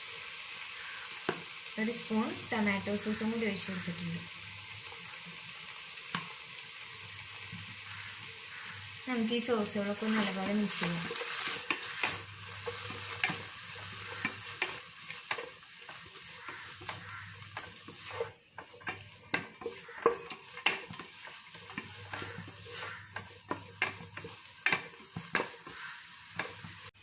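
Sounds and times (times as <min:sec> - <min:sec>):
vegetables sizzling in a pan: 0:00.0 - 0:27.0
utensil scraping and knocking pan: 0:10.1 - 0:26.9.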